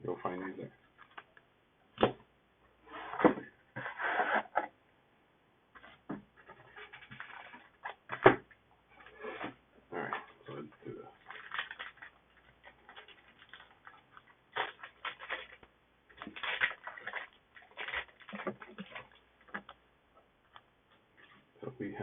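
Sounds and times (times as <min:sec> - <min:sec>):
wrapper crinkling and tearing: 0:06.9 - 0:07.9, 0:11.2 - 0:19.8
cards rustling: 0:10.1 - 0:19.8.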